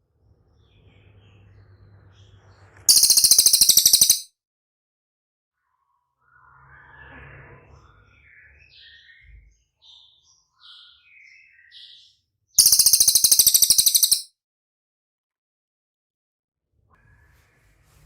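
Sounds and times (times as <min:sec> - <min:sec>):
bird buzzing rattle: 0:02.9 - 0:04.2, 0:12.6 - 0:14.3
songbird chirping: 0:02.9 - 0:04.3, 0:12.6 - 0:14.3.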